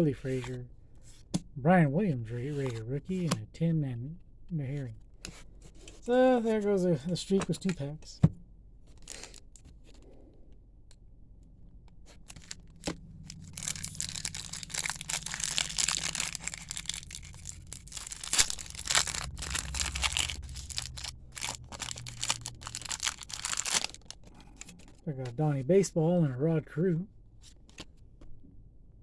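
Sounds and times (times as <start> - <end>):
cards shuffling: 0.2 - 0.6, 2.3 - 3.4, 12.1 - 25.0, 27.4 - 28.0
plastic wrapper tearing and crinkling: 9.0 - 9.4, 12.3 - 25.0.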